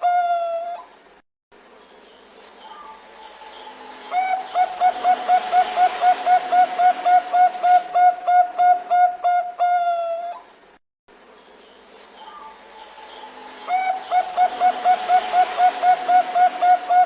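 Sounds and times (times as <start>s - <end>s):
dove cooing: 4.1s - 10.5s, 13.7s - 17.0s.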